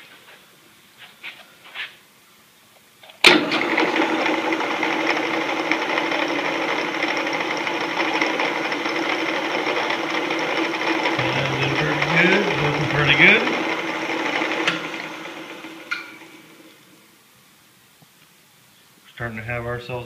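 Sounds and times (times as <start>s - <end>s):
band saw motor humming: 10.4s - 16.8s.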